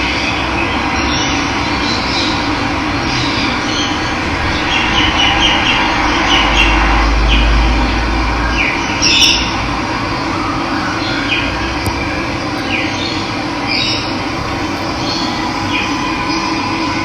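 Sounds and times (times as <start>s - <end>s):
bird chirping: 12.6s - 16.6s.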